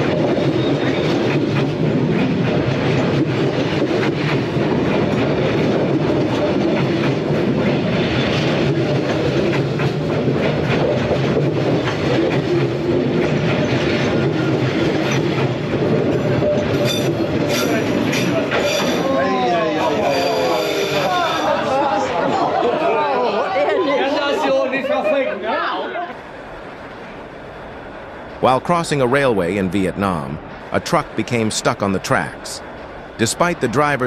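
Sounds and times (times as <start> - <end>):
train wheels clattering on rails: 0.0 - 19.2.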